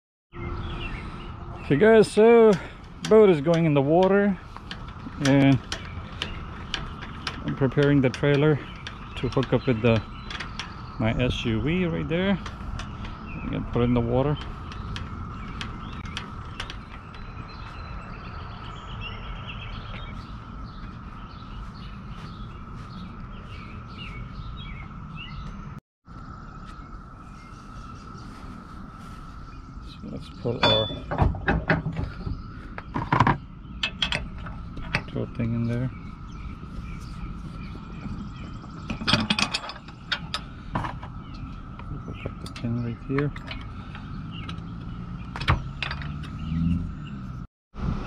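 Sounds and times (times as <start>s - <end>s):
small birds chirping: 0.3s - 47.5s
metal hitch clanking and rattling: 1.6s - 18.8s, 30.3s - 47.2s.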